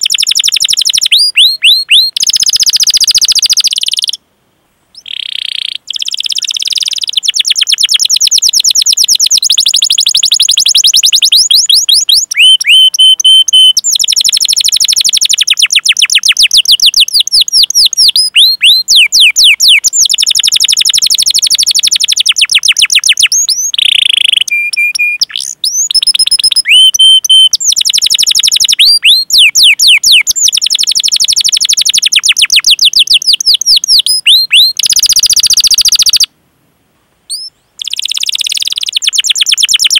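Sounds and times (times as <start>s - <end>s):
canary singing: 0.0s - 4.2s, 4.9s - 36.3s, 37.3s - 39.9s.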